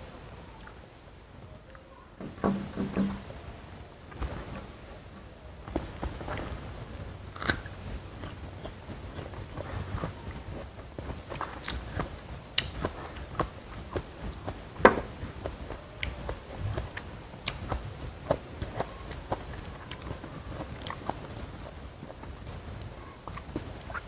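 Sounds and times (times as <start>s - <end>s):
chewing: 5.6s - 24.0s
crunchy snaps of biting: 7.3s - 10.5s, 11.3s - 22.6s.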